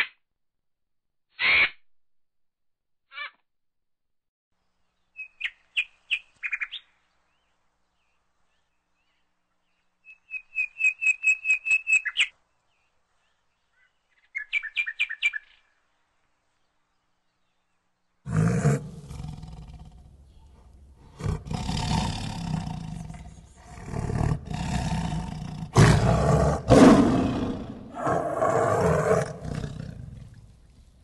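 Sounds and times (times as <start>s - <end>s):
big cat roaring: 18.3s - 30.8s.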